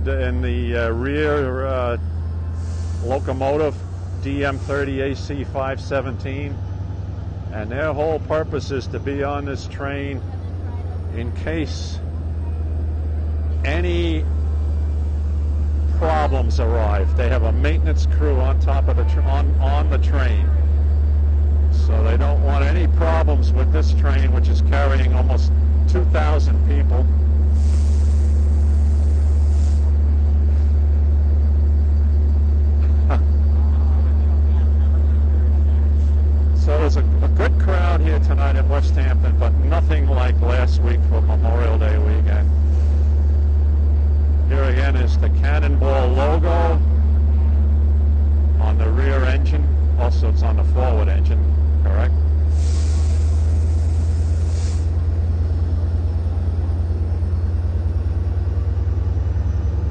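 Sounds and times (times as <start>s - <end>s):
diesel locomotive idling: 0.0s - 59.9s
air hisses: 2.5s - 5.0s, 27.5s - 30.7s, 52.4s - 55.2s.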